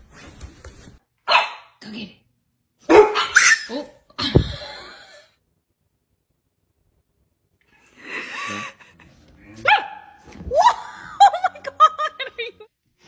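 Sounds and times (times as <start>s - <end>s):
dog barking: 1.3s - 1.8s, 2.8s - 3.9s, 9.6s - 10.2s.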